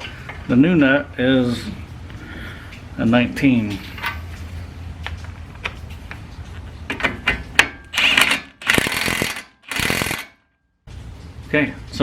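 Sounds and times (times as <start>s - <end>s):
ratchet wrench clicking: 8.0s - 10.4s.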